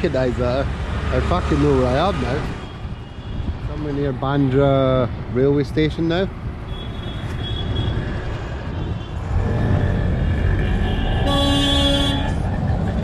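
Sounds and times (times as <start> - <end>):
motorcycle engine and road rumble: 0.0 - 13.0
vehicle horn blaring: 9.8 - 12.4.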